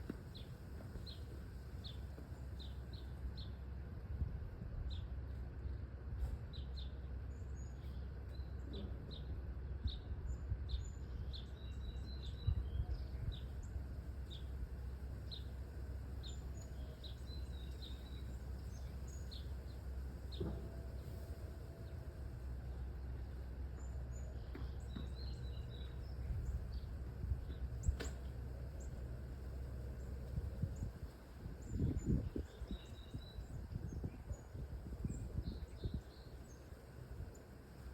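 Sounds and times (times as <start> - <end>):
small birds chirping: 0.0 - 3.7, 4.8 - 37.9.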